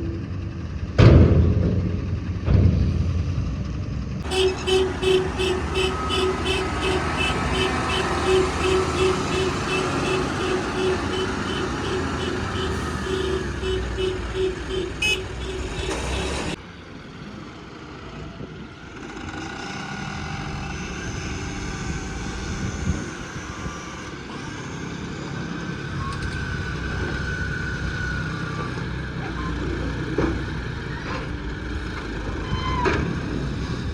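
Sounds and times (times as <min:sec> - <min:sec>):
diesel engine rumble: 0:00.0 - 0:33.9
rapid horn-like beeping: 0:04.2 - 0:16.6.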